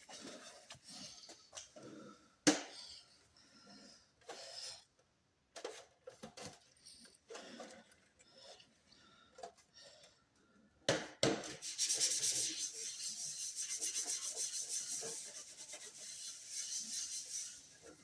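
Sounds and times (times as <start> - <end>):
rubbing strokes on hard surface: 11.5 - 18.0.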